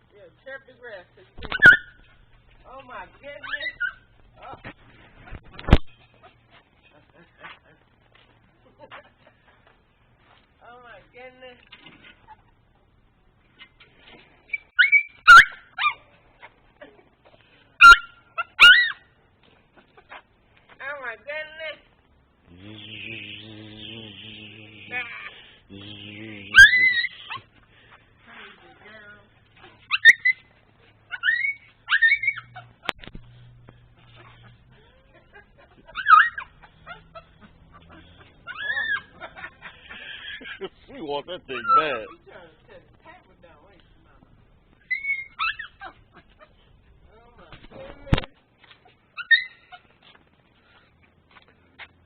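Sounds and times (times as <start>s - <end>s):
dog yipping and whining: 1.4s - 2.2s, 3.3s - 4.2s, 14.5s - 16.6s, 17.8s - 19.1s, 26.6s - 27.5s, 29.6s - 33.0s, 34.0s - 40.5s, 41.6s - 42.2s, 44.8s - 46.6s, 48.8s - 50.1s.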